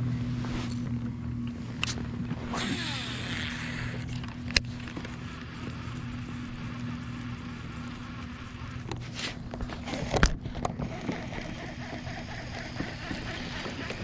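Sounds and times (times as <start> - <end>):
motor humming: 1.6 - 14.0
water rushing along hull: 4.6 - 9.1, 10.9 - 14.0.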